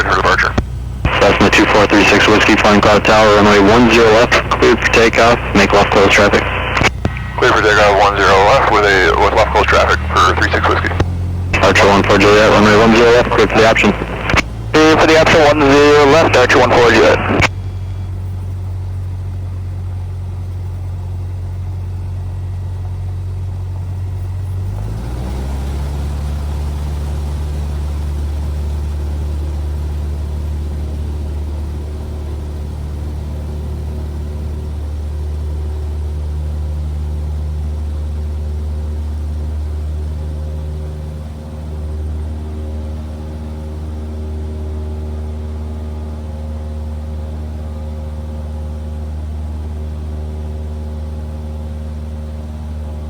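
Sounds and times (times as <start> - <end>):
light aircraft engine and propeller: 0.0 - 53.0.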